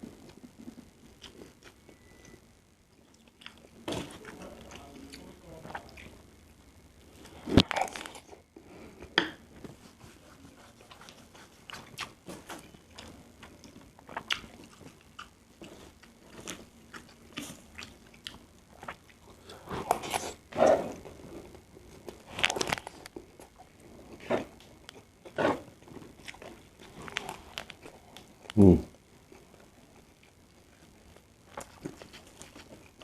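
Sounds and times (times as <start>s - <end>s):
chewing and mouth sounds: 3.0s - 6.2s, 10.6s - 28.7s, 31.5s - 33.0s.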